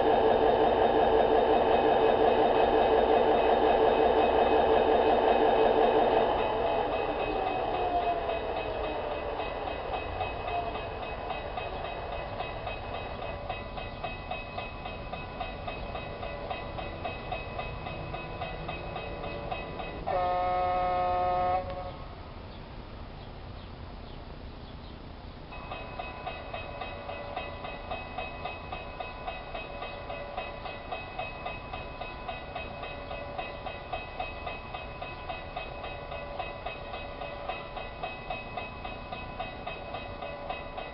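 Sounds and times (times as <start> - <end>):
model train humming and ticking: 0.0 - 40.9
model train horn: 20.1 - 22.1.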